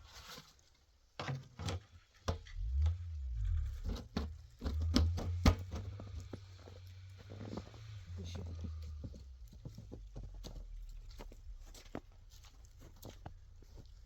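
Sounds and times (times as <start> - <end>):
low rumble: 2.5 - 11.7.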